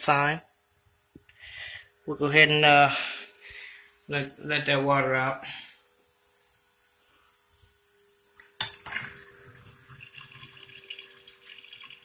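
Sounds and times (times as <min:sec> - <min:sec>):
water running down drain: 0:08.7 - 0:12.0.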